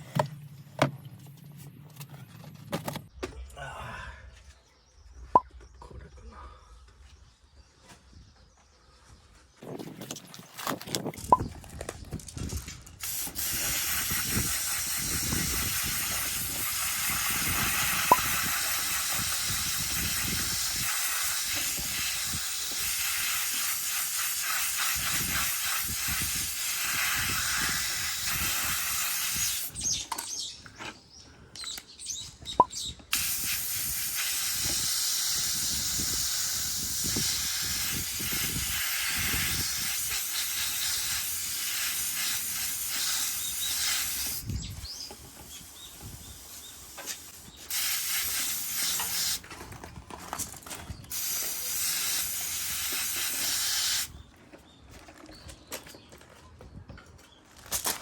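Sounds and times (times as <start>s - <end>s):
pressurised air jet hissing: 13.0s - 29.8s, 33.1s - 49.4s, 51.1s - 54.1s.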